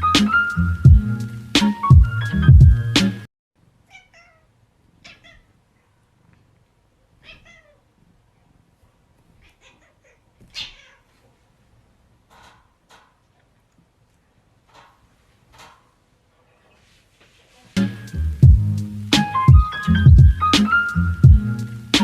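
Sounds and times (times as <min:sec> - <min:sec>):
loud background music: 0:00.0 - 0:03.2, 0:17.8 - 0:22.0
cat meowing quietly: 0:03.9 - 0:05.9, 0:07.2 - 0:07.9, 0:09.4 - 0:11.3.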